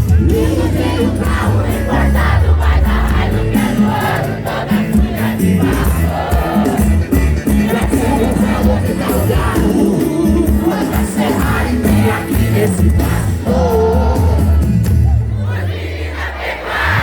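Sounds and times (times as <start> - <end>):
live band music: 0.0 - 15.6
crowd shouting along: 0.1 - 17.0
person singing: 7.6 - 14.8.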